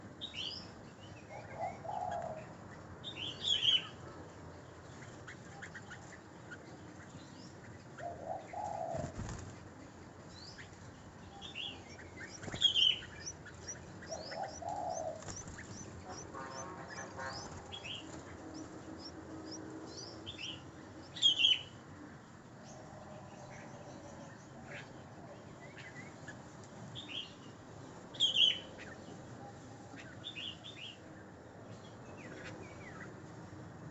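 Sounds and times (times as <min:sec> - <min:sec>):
low soft bird calls: 0:00.2 - 0:21.8
loud sharp bird chirp: 0:11.9 - 0:18.0.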